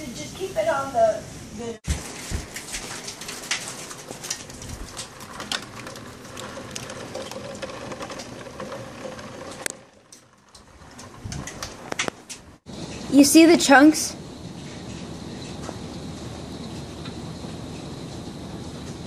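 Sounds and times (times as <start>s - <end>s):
hailstones striking hard surfaces: 1.9s - 12.4s.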